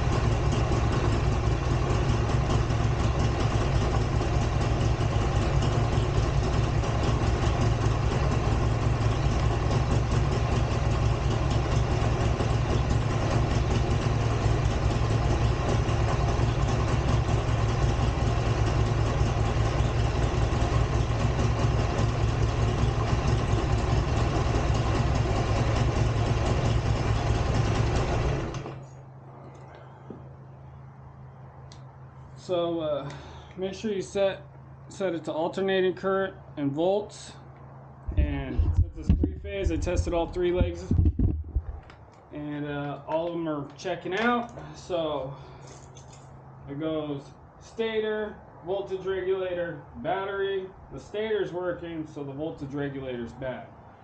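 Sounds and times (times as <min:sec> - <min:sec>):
motorcycle engine idling: 0:00.0 - 0:35.1, 0:37.3 - 0:42.3.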